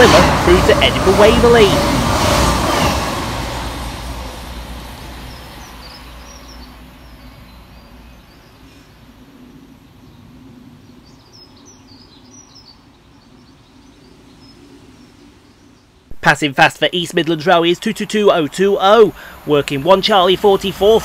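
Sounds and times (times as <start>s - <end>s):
train low rumble: 0.0s - 11.4s
small birds chirping: 4.5s - 16.1s.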